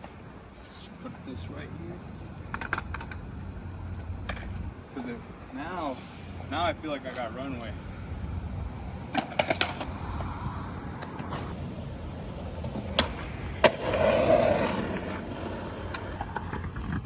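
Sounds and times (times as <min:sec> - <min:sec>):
skateboard rolling: 0:02.0 - 0:04.7, 0:08.9 - 0:17.0
skateboard clacks: 0:02.5 - 0:03.4, 0:04.2 - 0:04.6, 0:09.1 - 0:09.9, 0:11.0 - 0:17.0.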